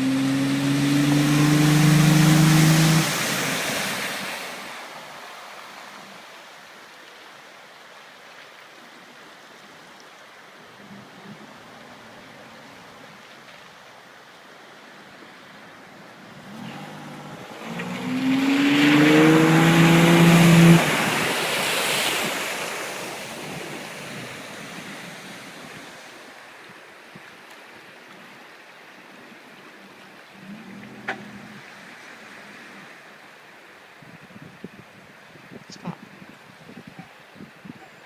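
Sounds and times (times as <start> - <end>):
vehicle engine passing: 0.0 - 4.0, 16.3 - 21.9.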